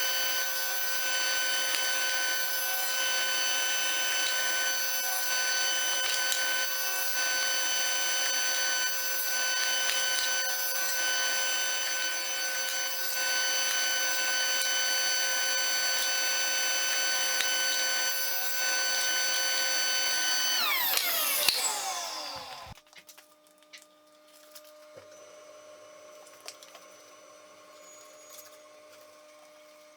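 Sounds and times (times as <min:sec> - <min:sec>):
electric power tool running: 0:00.0 - 0:22.8.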